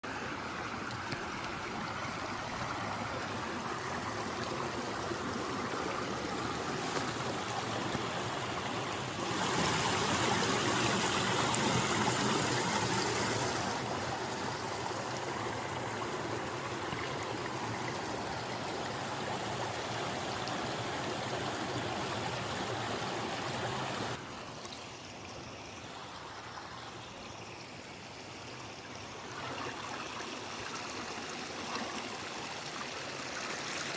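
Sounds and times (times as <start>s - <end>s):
running water flowing: 0.0s - 33.9s.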